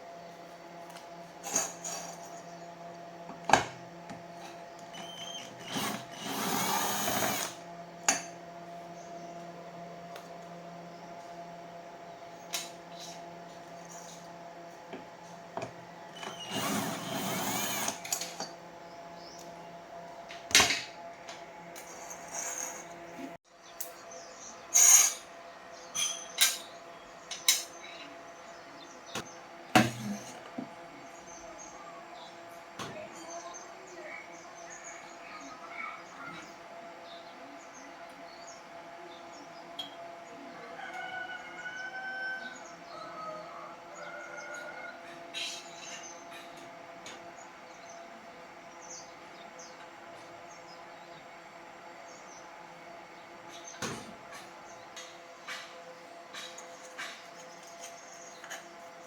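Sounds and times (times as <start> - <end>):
power drill whirring: 5.0 - 7.6, 16.2 - 18.4.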